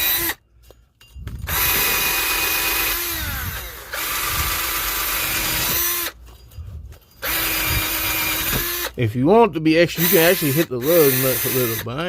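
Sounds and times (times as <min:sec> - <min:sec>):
power tool wire wheel scrubbing metal: 0:00.0 - 0:00.4, 0:09.9 - 0:12.0.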